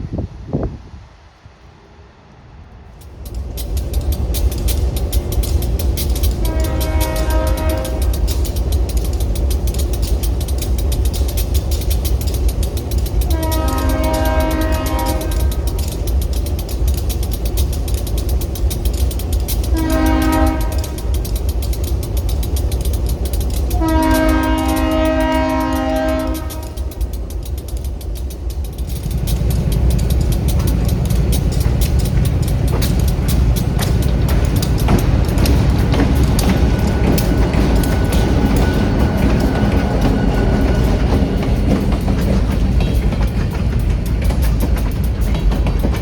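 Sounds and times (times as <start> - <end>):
passing train rumble: 0.0 - 46.0
locomotive air horn blasts: 6.4 - 8.1, 13.3 - 15.6, 19.7 - 21.0, 23.8 - 26.8.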